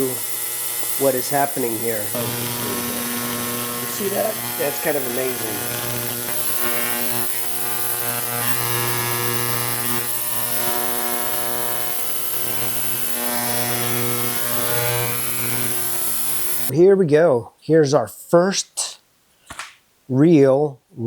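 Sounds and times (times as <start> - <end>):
ultrasonic cleaner buzzing: 0.0 - 16.7.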